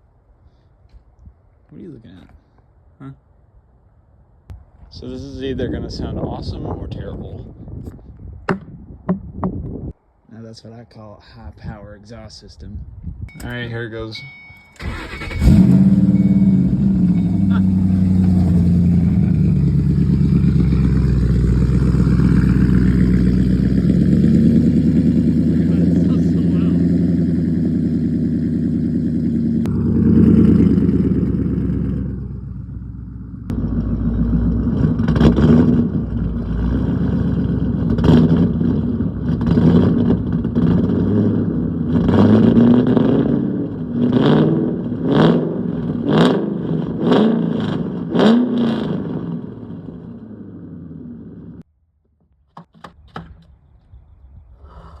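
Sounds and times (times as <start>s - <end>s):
car engine revving: 14.8s - 51.6s.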